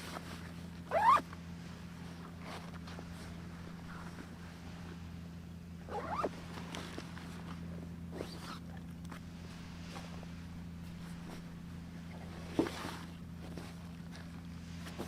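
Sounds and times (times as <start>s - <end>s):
steady low hum: 0.0s - 15.0s
dog whimpering: 0.9s - 1.2s.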